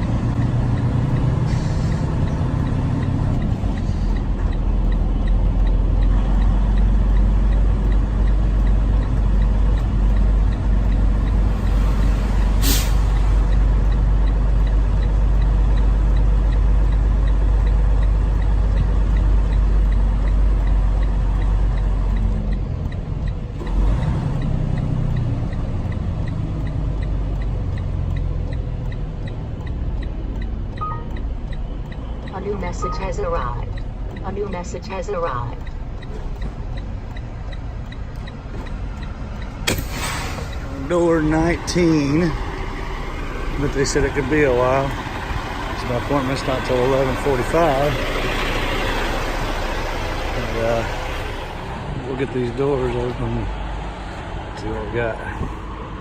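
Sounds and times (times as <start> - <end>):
diesel truck engine rumbling: 0.0 - 56.0
air brake hiss: 12.6 - 13.2, 39.7 - 40.7.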